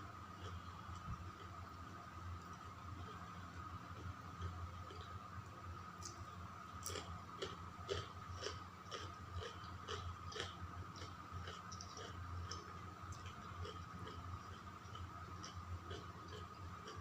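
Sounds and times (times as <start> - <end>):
faint steady hum: 0.0 - 17.0
person chewing food: 6.8 - 17.0.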